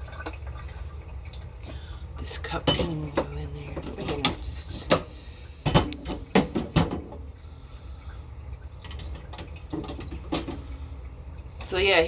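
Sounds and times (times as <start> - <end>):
dishes clinking and knocking: 2.6 - 7.2, 8.9 - 10.7.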